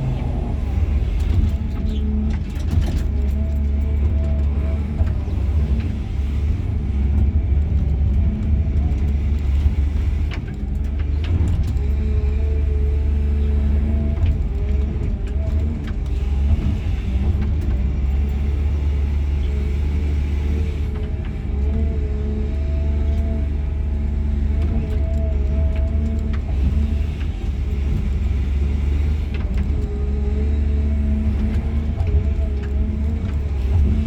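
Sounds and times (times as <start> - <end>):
excavator diesel engine rumble: 0.0 - 34.0.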